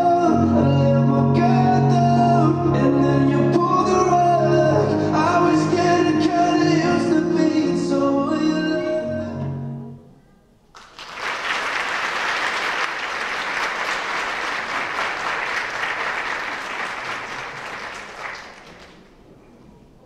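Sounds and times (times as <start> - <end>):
audience applauding: 10.7 - 19.3.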